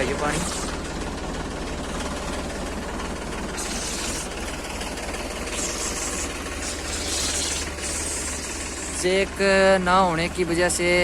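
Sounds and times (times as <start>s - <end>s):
diesel engine idling: 0.0s - 11.0s
hiss: 0.2s - 0.9s, 3.5s - 4.6s, 5.3s - 9.1s.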